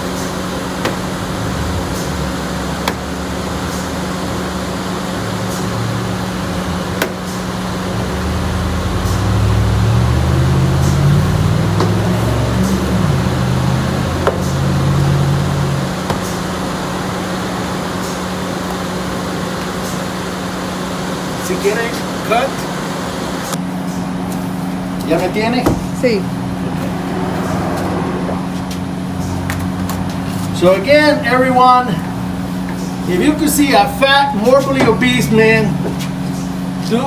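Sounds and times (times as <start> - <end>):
car wash machinery hum: 0.0 - 37.0
lower machine drone: 0.0 - 37.0.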